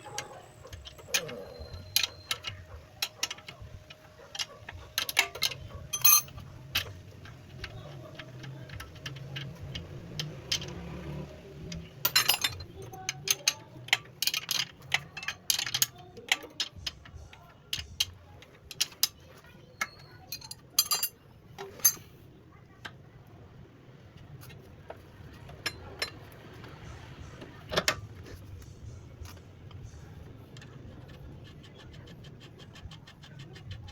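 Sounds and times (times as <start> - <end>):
metal tools clicking and clinking: 0.1 - 22.1.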